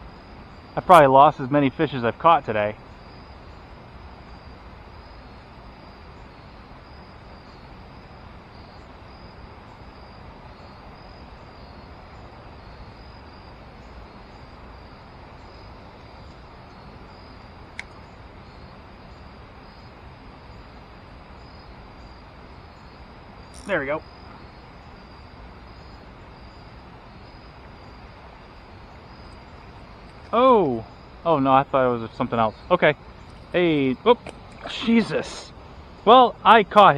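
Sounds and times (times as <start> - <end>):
insects chirping: 0.0 - 36.9
sharp click: 23.5 - 23.7
river water rushing: 33.6 - 35.9.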